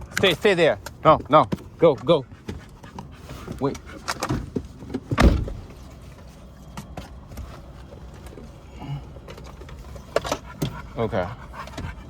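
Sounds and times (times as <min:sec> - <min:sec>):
car door shutting: 0:04.1 - 0:05.8.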